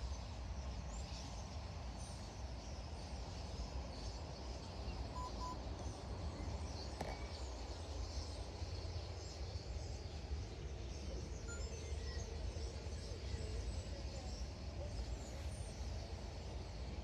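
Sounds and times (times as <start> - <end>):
faint bird chirps: 4.7 - 17.0.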